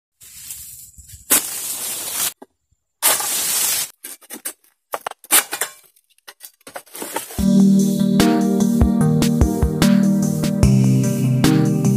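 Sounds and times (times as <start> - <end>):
palm fronds scraping and rustling: 0.2 - 2.4, 3.0 - 4.6, 6.7 - 7.4.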